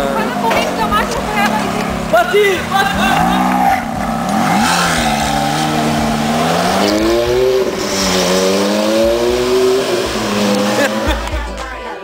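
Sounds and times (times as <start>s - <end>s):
sports car accelerating: 0.0s - 11.7s.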